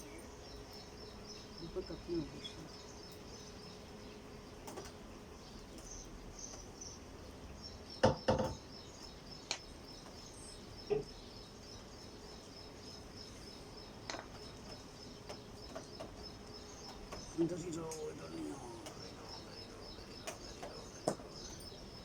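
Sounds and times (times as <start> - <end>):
sharp knocks and clicks: 8.0 - 8.6, 14.1 - 17.3, 20.2 - 21.4.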